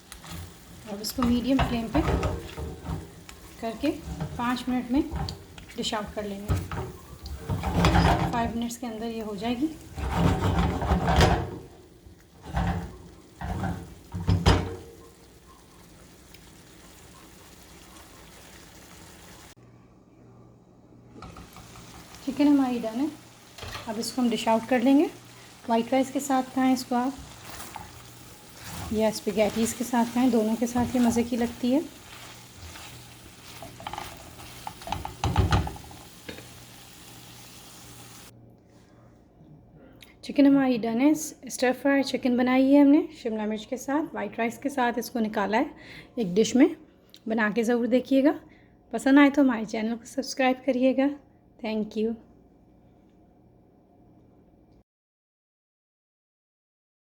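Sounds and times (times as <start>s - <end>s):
spoon scraping frying pan: 0.0s - 15.2s, 21.2s - 37.3s
food sizzling: 0.0s - 19.6s, 21.2s - 38.3s.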